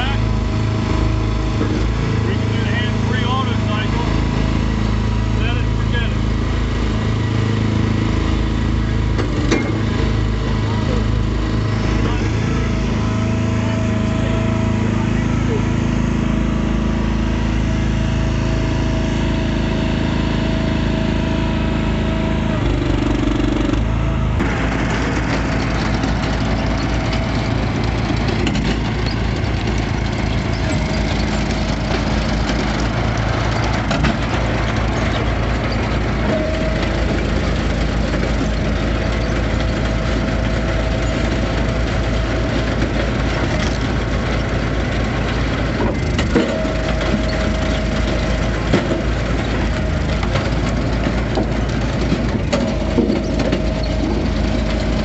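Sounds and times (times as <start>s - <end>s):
log splitter engine running: 0.0s - 55.0s.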